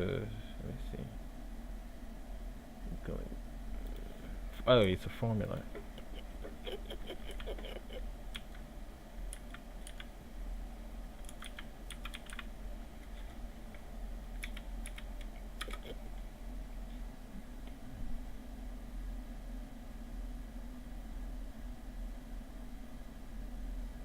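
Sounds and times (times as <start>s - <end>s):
computer keyboard typing: 5.7s - 8.6s, 9.3s - 10.1s, 11.2s - 12.5s, 14.3s - 16.0s.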